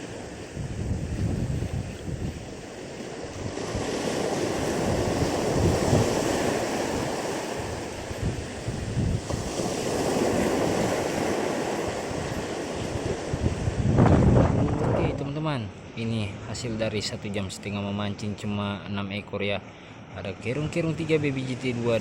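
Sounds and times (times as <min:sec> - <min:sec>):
wind buffeting microphone: 0:00.0 - 0:15.6
waves on rocky shore: 0:00.0 - 0:22.0.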